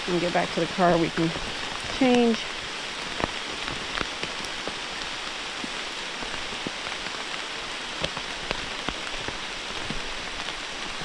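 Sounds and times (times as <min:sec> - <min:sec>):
raindrops ticking close by: 0:00.0 - 0:11.0
steady rain: 0:00.0 - 0:11.0.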